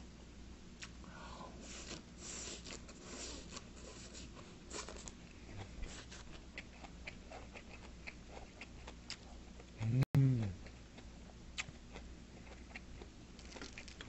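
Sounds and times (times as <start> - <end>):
crunchy wet chewing: 4.7 - 9.8, 10.6 - 14.0.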